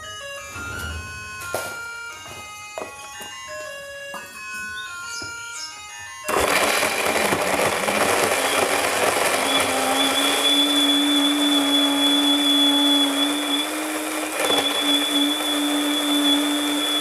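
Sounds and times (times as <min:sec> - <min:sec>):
background music: 0:00.0 - 0:06.3
electric mixer grinder running: 0:06.0 - 0:17.0.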